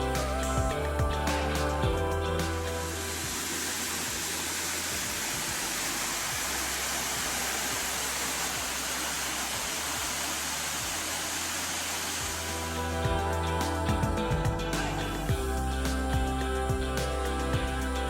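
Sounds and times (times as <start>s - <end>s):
waterfall roaring: 3.0s - 12.8s.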